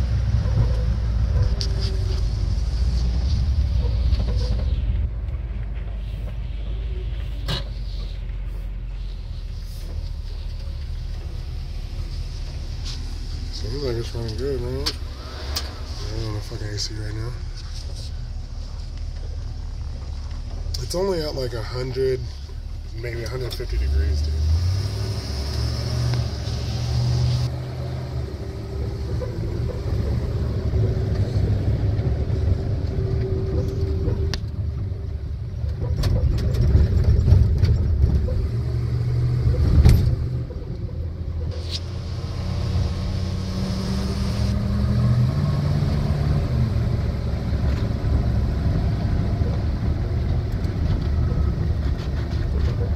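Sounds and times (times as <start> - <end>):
car engine rumble: 0.0 - 52.9
road noise: 0.0 - 52.9
sharp knocks and rattles: 35.6 - 38.5.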